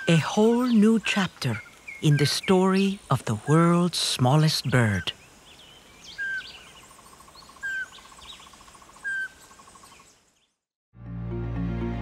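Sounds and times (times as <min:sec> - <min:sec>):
high bird chirps: 0:04.5 - 0:10.6.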